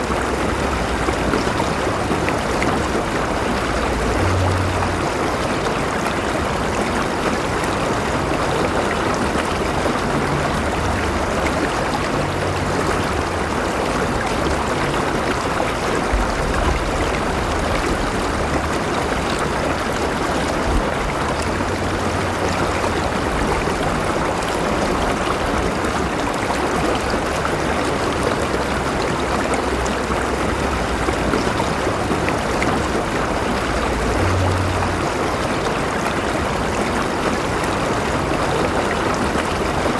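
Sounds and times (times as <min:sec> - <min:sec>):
river water rushing: 0:00.0 - 0:39.9
low rumble: 0:30.6 - 0:36.5.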